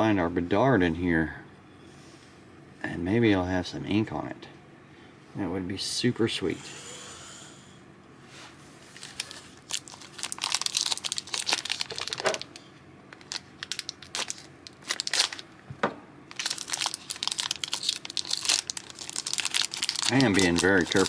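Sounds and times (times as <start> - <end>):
card pack wrapper crinkling: 8.9 - 15.6, 16.3 - 21.0.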